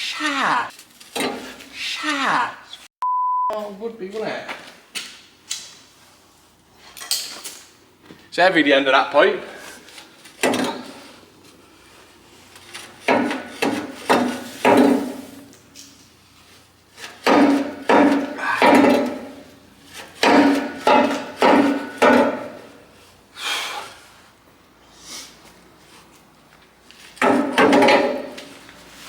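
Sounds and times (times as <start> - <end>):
hammer striking steel tube: 17.2 - 19.5, 20.2 - 22.7.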